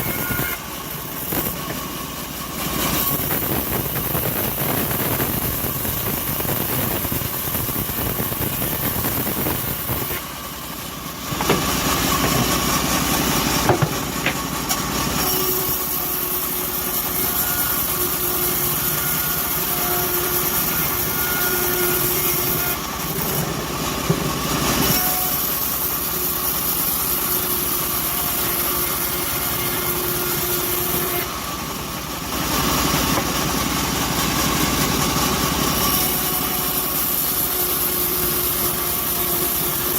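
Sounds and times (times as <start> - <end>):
thin machine whine: 0.0 - 26.0
bandsaw mill cutting log: 0.0 - 39.9.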